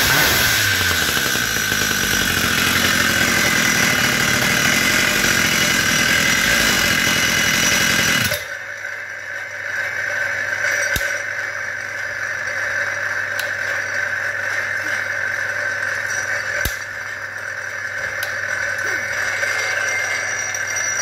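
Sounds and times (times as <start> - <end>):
two-stroke engine idling: 0.0 - 8.8.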